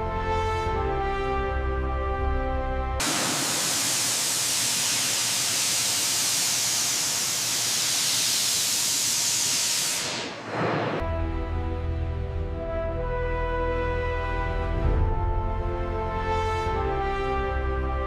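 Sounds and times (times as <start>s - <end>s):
music: 0.0s - 3.0s, 10.4s - 18.0s
pressurised air spraying hiss: 3.0s - 10.3s.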